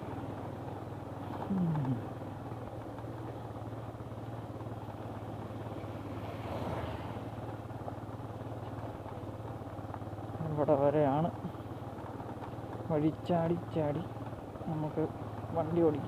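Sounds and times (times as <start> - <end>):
motorcycle engine running at low revs: 0.0 - 16.0.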